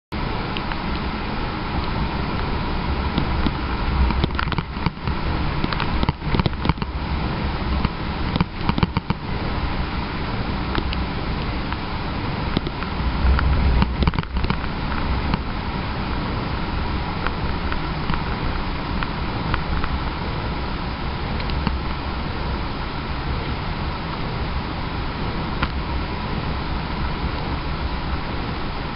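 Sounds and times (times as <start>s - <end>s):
truck engine and road rumble: 0.1s - 28.9s
sharp clicks and knocks: 3.1s - 6.9s, 7.8s - 9.2s, 12.5s - 15.4s.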